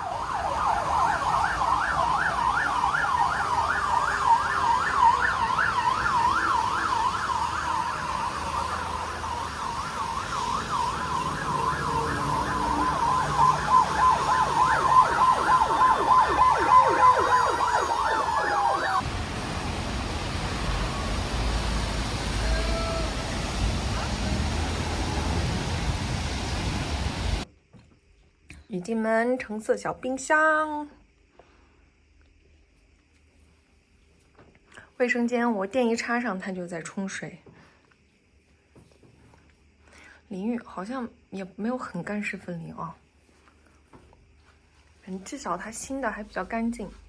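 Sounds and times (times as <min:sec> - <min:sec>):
emergency siren yelping: 0:00.0 - 0:27.4
second siren: 0:00.0 - 0:27.4.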